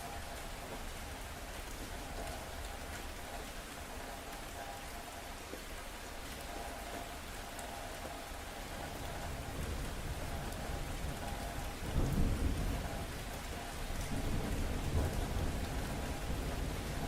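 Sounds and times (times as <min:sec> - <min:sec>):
steady rain: 0:00.0 - 0:17.0
thunder rumbling: 0:08.8 - 0:17.0.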